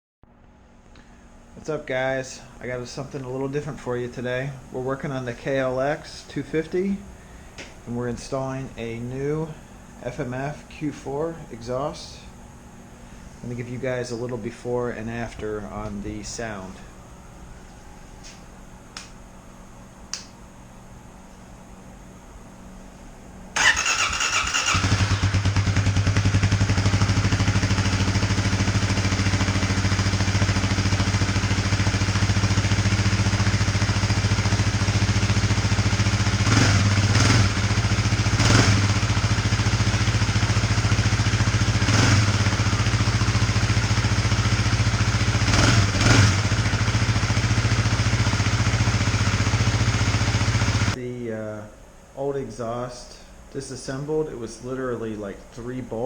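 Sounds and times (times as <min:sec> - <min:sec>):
electric starter: 0:23.6 - 0:51.0
motorcycle engine idling: 0:23.6 - 0:51.0.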